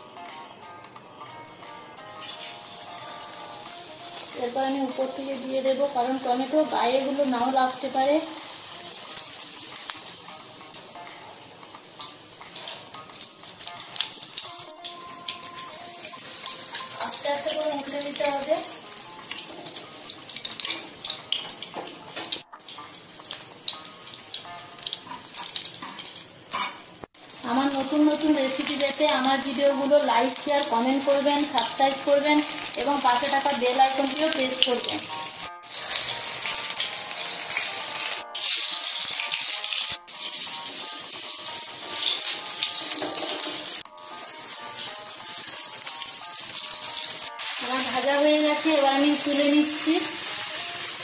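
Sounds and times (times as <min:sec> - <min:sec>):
background music: 0:00.0 - 0:26.7, 0:27.3 - 0:51.0
deep-frying sizzling and crackling: 0:00.0 - 0:51.0
metal spatula scraping a pan: 0:02.2 - 0:02.8, 0:25.1 - 0:26.9, 0:35.6 - 0:36.5.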